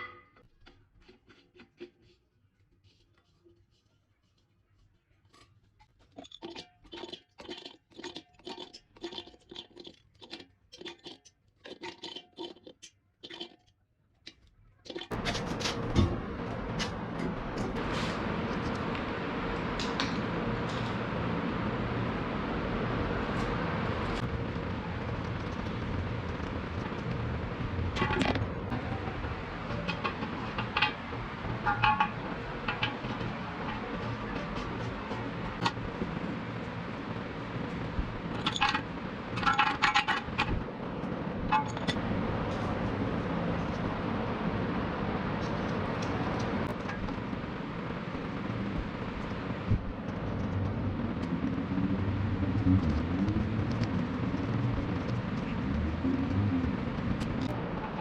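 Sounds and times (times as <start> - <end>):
rhythmic scraping: 15.1 - 58.0
steady low hum: 15.1 - 58.0.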